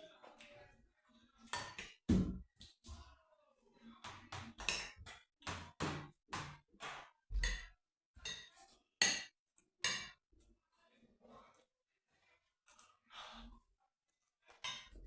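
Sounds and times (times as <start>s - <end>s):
cutlery clinking: 6.9s - 10.2s, 14.5s - 15.0s.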